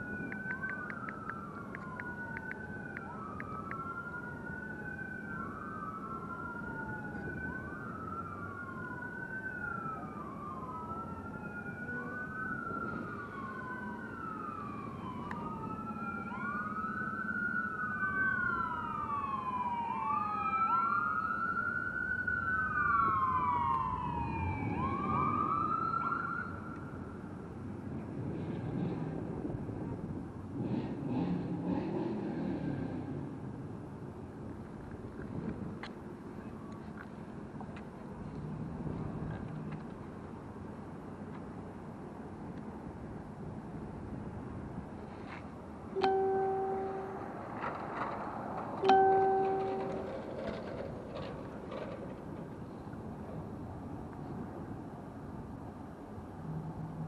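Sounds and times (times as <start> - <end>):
sirens wailing: 0.0 - 27.9, 45.6 - 54.9.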